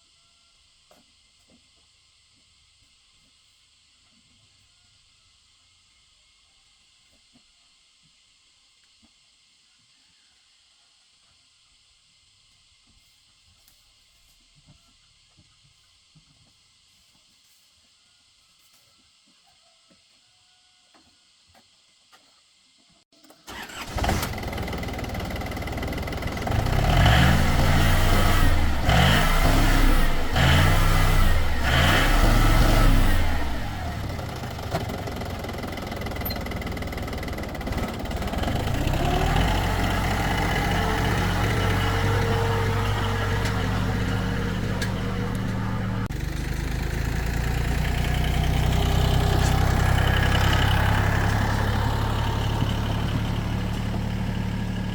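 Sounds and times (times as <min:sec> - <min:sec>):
tractor engine starting and revving: 0:23.2 - 0:54.9.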